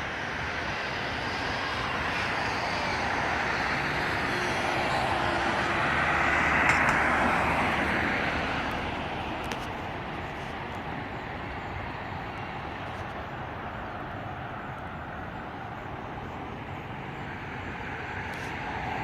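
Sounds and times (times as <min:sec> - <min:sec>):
traffic hum: 0:00.0 - 0:19.0
vehicle passing close by: 0:03.1 - 0:09.5.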